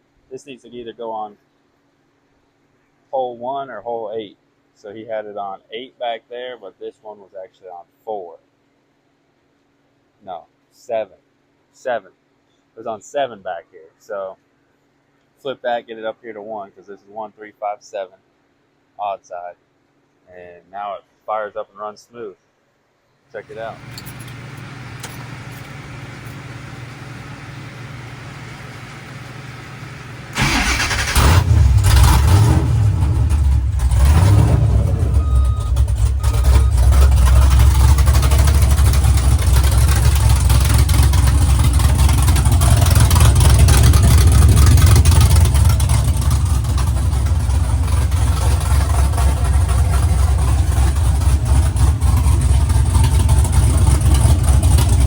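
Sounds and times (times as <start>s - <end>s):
low steady hum: 0.0s - 8.4s, 10.2s - 55.0s
car engine starting and revving: 23.5s - 55.0s.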